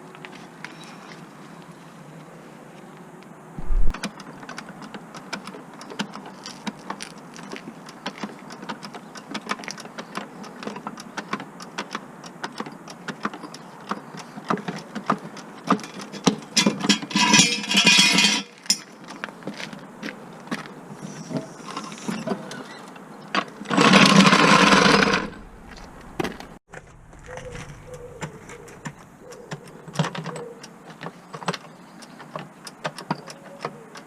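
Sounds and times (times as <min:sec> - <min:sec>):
tools clinking: 0:16.0 - 0:18.9.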